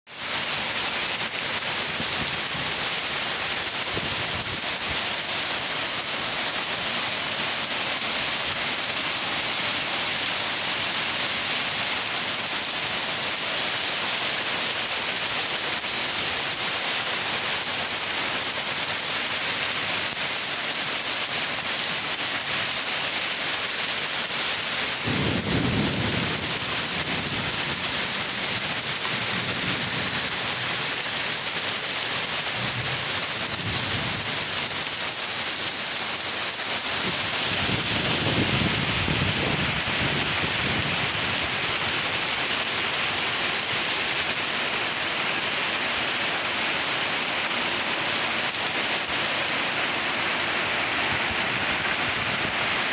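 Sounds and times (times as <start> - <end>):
heavy rain: 0.1 - 52.9
thunder rumbling: 25.1 - 30.5, 37.0 - 41.5.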